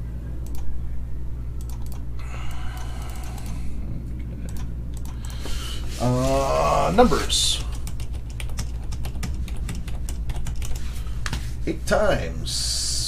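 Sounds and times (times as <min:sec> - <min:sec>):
low hum: 0:00.0 - 0:13.0
keyboard typing: 0:01.6 - 0:02.0, 0:04.5 - 0:05.4, 0:07.6 - 0:10.9.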